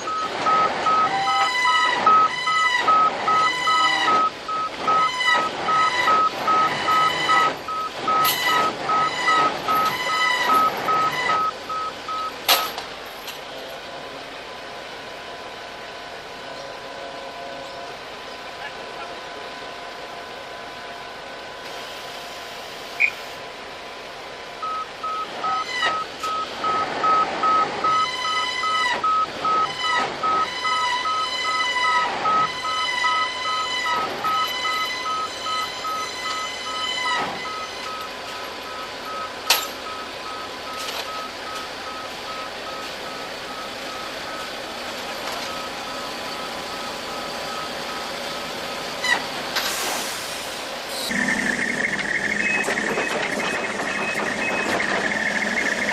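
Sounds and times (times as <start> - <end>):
reversing alarm beeping: 0.0 - 12.8, 24.6 - 49.3, 50.9 - 55.9.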